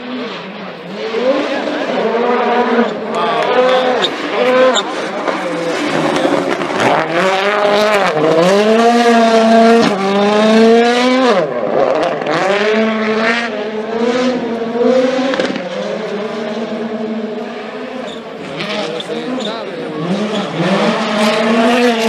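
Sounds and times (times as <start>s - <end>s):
rally car engine at full throttle: 0.0s - 22.0s.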